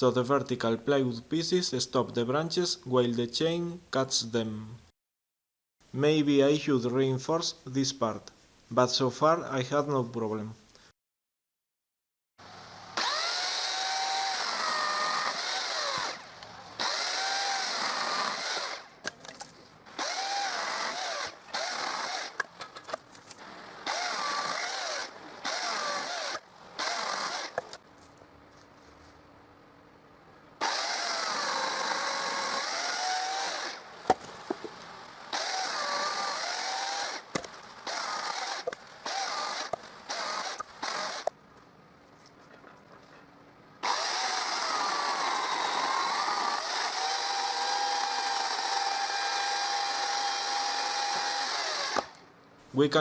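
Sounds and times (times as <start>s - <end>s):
chainsaw cutting branches: 12.9s - 19.1s, 19.8s - 27.9s, 30.6s - 41.4s, 43.8s - 52.2s.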